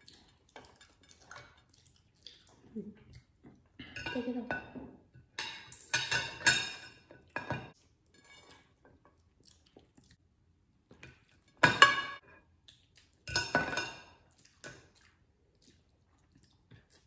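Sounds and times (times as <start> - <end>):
cutlery clattering on plates: 3.8 - 8.6, 11.6 - 12.2, 13.3 - 14.2.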